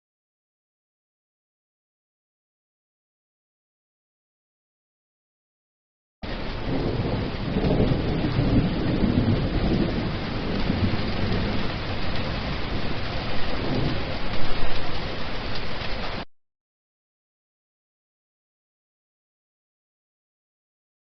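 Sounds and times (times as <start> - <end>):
rolling thunder: 6.2 - 16.2
heavy rain hissing: 6.2 - 16.3.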